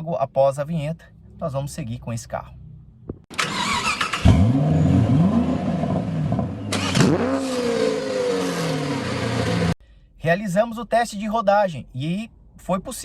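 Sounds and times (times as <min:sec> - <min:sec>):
car engine revving: 0:03.3 - 0:09.8.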